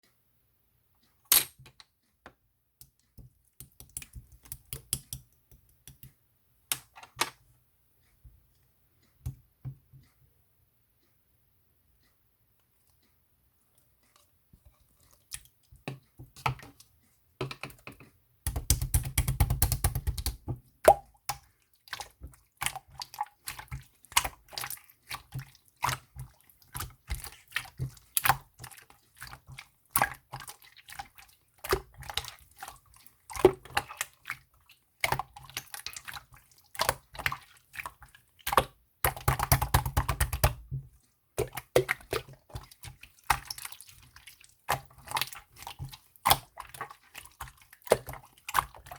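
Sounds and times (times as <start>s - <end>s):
slime squishing by hand: 18.4s - 48.9s.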